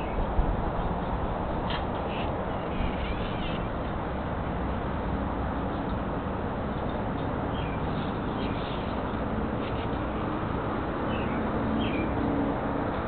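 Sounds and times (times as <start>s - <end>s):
steady background noise: 0.0s - 13.0s
small bird chirping: 6.9s - 10.0s.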